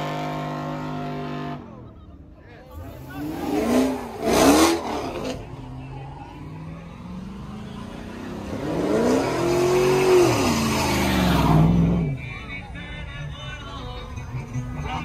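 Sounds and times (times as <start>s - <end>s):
car engine revving: 2.7s - 12.2s
pickup truck engine revving: 2.8s - 5.5s, 6.6s - 12.2s.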